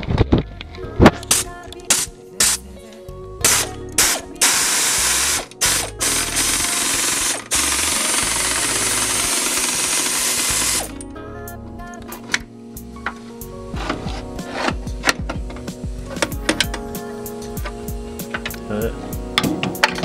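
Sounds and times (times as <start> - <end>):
background music: 0.0 - 20.0
pneumatic tool hissing and rattling: 1.3 - 2.6, 3.5 - 11.0.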